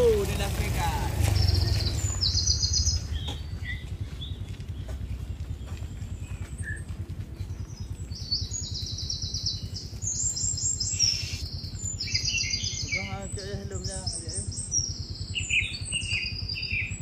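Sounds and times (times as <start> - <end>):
low rumble: 0.0 - 17.0
small birds trilling: 0.0 - 17.0
wavering lower bird call: 8.2 - 17.0.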